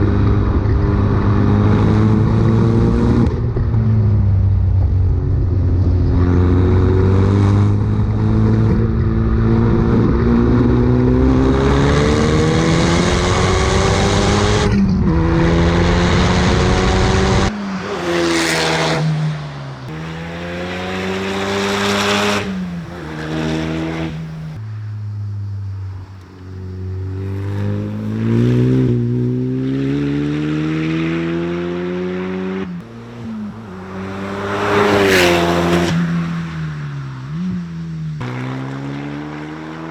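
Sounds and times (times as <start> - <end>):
car engine accelerating hard: 0.0 - 24.6, 25.7 - 39.9
engine revving: 6.2 - 24.6, 26.7 - 36.1.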